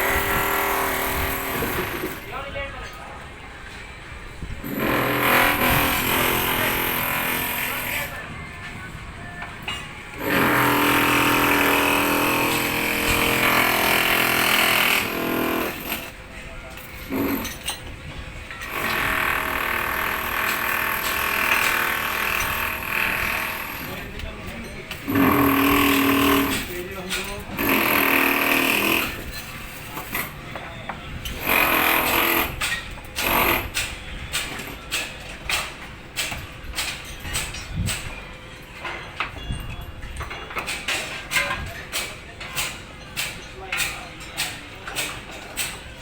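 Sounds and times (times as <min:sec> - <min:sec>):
power tool cutting metal pipe: 0:04.6 - 0:08.1, 0:10.2 - 0:16.1, 0:25.0 - 0:26.7.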